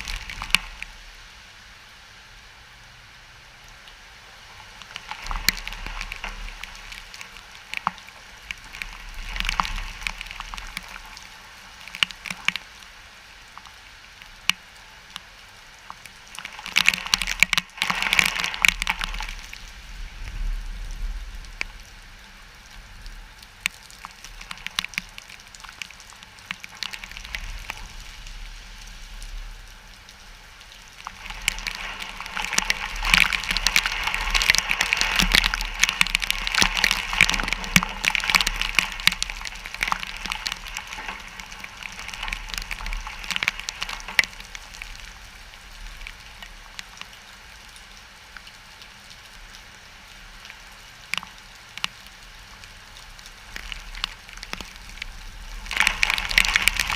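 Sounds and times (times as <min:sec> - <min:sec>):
sharp crackles: 0:00.0 - 0:01.2, 0:04.5 - 0:49.6, 0:50.2 - 0:56.9
wind rumble on microphone: 0:00.0 - 0:01.4, 0:16.4 - 0:25.1, 0:53.4 - 0:56.9
wind-driven rain: 0:00.0 - 0:56.9.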